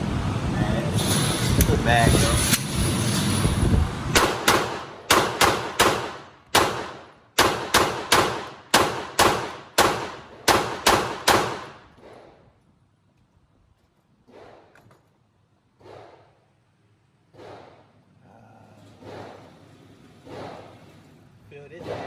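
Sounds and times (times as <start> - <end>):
gunshots with echo: 4.2 - 11.8.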